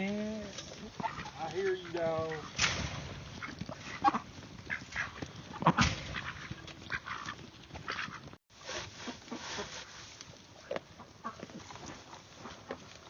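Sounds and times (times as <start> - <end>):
ducks quacking: 0.7 - 2.6, 3.3 - 8.3.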